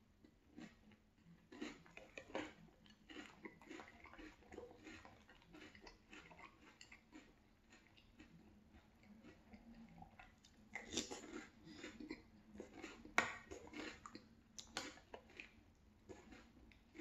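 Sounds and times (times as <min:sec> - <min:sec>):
chewing crunchy cereal: 0:00.1 - 0:17.0
wet mouth sounds: 0:09.0 - 0:15.3.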